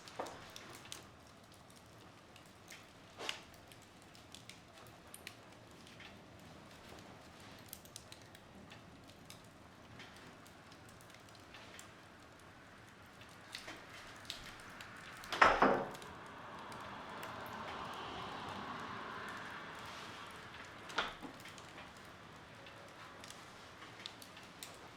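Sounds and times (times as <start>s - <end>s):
wood fire crackling: 0.0s - 24.9s.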